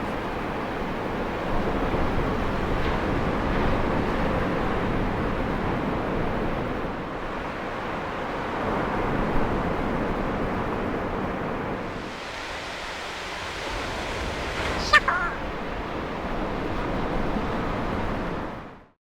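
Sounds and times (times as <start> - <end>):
ocean surf rushing: 12.0 - 16.4.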